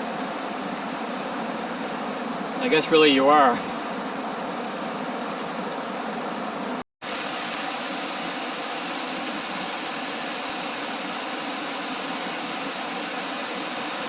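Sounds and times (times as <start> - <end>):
waterfall rushing: 0.0 - 5.9, 7.0 - 14.0.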